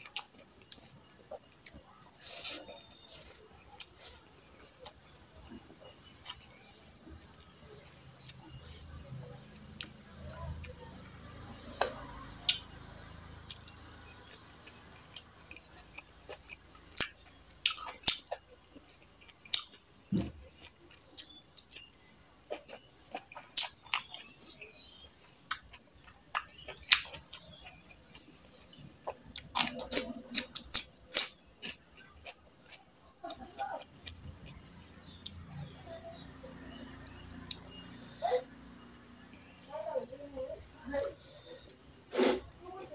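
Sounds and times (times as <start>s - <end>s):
chewing and wet mouth smacks: 6.2s - 7.5s, 8.2s - 38.5s.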